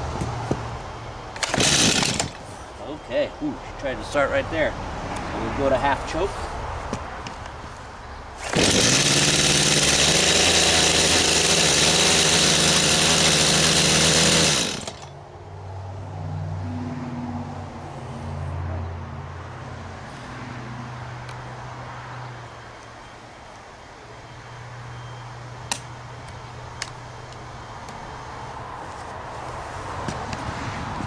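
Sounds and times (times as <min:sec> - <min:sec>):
chainsaw engine starting and idling: 0:01.2 - 0:02.8, 0:08.4 - 0:15.2.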